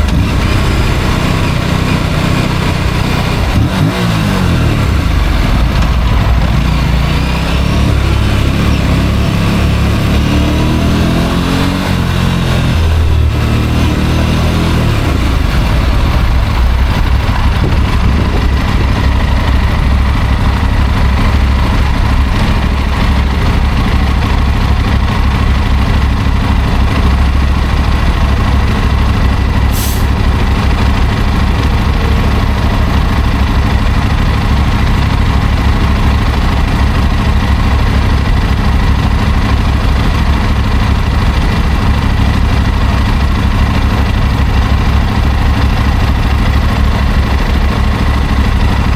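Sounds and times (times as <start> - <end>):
motorcycle engine idling: 0.0 - 11.4, 12.1 - 48.9
brief sharp hiss: 29.7 - 30.2.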